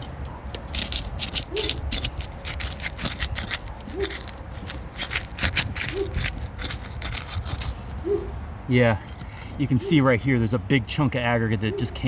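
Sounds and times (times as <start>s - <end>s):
roof shingle seal crackling: 0.0s - 8.1s.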